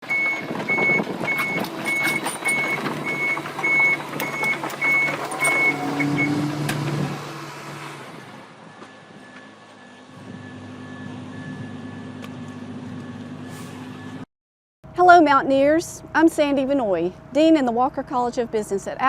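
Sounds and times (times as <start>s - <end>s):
reversing alarm beeping: 0.0s - 6.6s, 8.4s - 12.2s
backhoe engine running: 0.0s - 14.2s.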